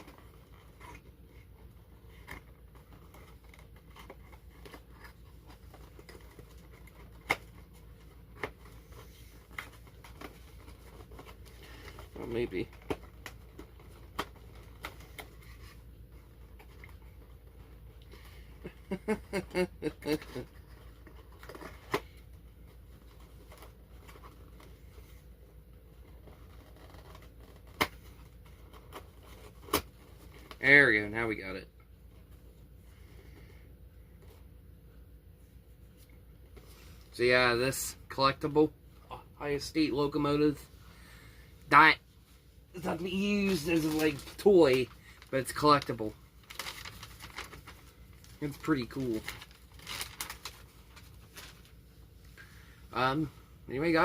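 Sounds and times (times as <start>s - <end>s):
plastic packaging rustling: 42.7s - 53.2s.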